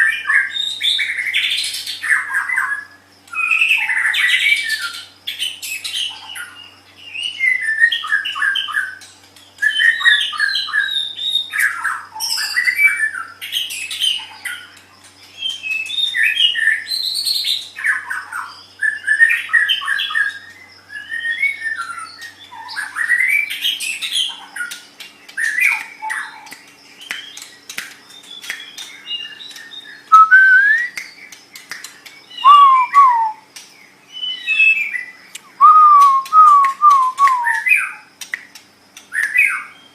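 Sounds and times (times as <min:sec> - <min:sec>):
bird singing chattering trills: 0:00.0 - 0:39.9
sliding whistled bird notes: 0:25.4 - 0:33.5, 0:34.1 - 0:38.0.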